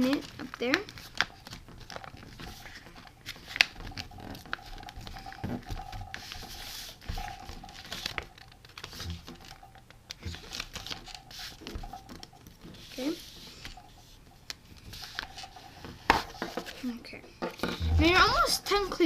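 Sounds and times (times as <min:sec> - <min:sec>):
stiff paper crinkling and rustling: 0:00.0 - 0:19.0.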